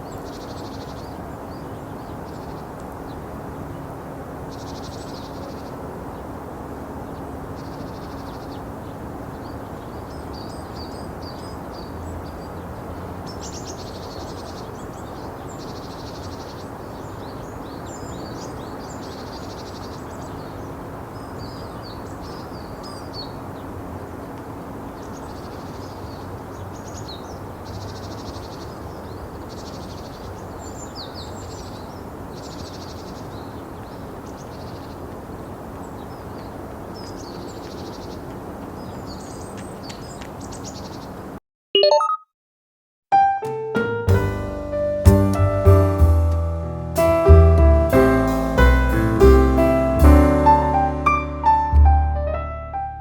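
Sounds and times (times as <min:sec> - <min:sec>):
small birds chirping: 0:00.0 - 0:06.4, 0:07.0 - 0:41.4
low background rumble: 0:44.2 - 0:53.0.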